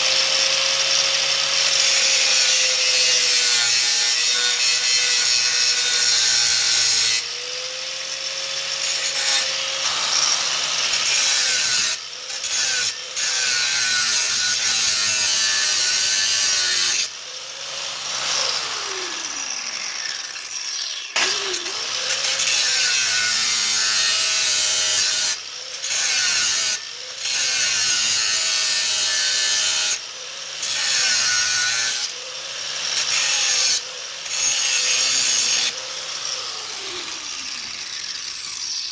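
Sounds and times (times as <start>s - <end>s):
saw cutting metal: 0.0s - 38.9s.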